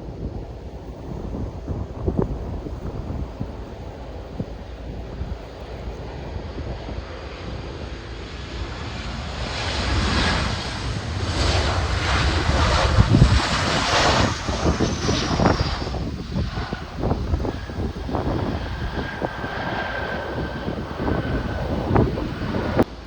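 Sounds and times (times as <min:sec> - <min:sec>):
jet airliner passing: 0:00.0 - 0:23.0
wind buffeting microphone: 0:00.0 - 0:23.0
falling engine whine: 0:07.8 - 0:23.0.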